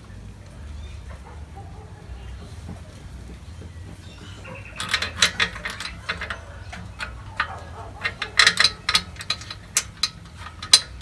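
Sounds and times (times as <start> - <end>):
metal brake parts clinking: 4.1 - 11.0.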